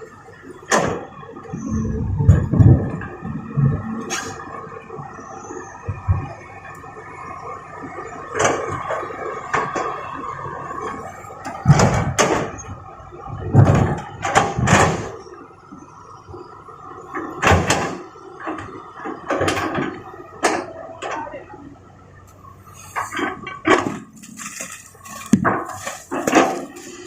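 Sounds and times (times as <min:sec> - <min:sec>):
diesel machinery hum: 0:00.0 - 0:27.0
rocks crashing into steel truck bed: 0:23.3 - 0:26.8.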